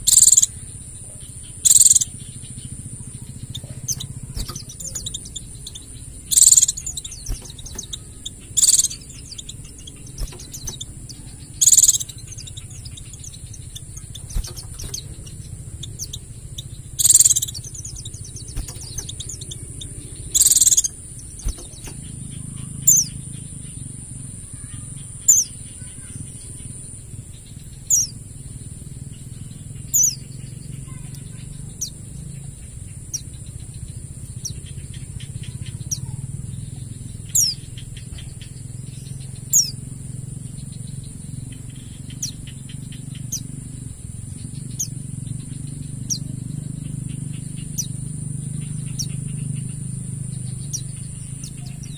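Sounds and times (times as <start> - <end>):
bird chirping: 0.0 - 51.9.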